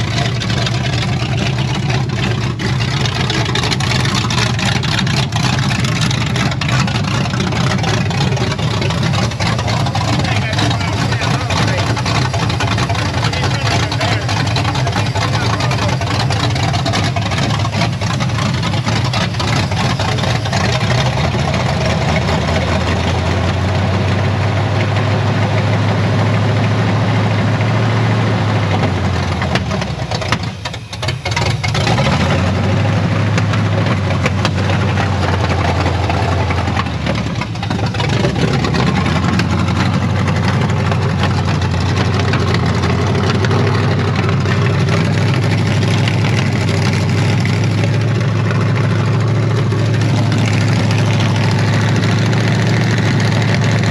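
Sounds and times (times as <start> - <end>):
pickup engine idling: 0.0 - 53.9.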